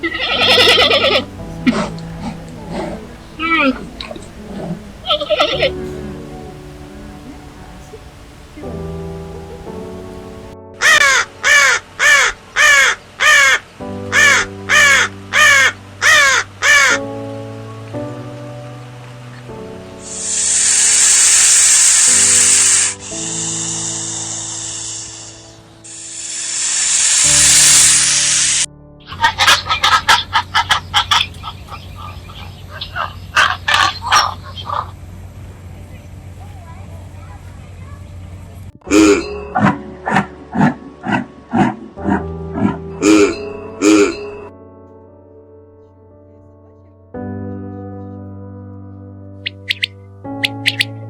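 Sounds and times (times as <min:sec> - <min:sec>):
large bird cawing: 0:00.0 - 0:17.1, 0:29.1 - 0:35.0, 0:49.5 - 0:51.0
soft piano music: 0:00.0 - 0:51.0
short sharp animal calls: 0:49.5 - 0:50.9.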